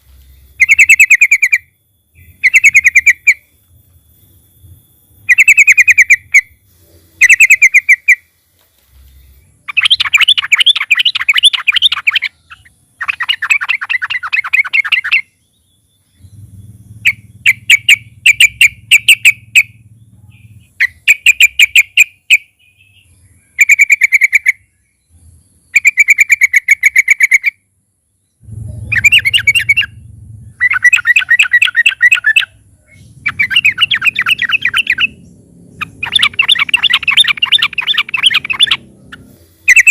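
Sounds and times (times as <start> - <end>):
bird chattering calls: 0.2 - 3.6, 5.2 - 8.4, 9.1 - 24.8, 25.6 - 27.6, 28.4 - 39.9.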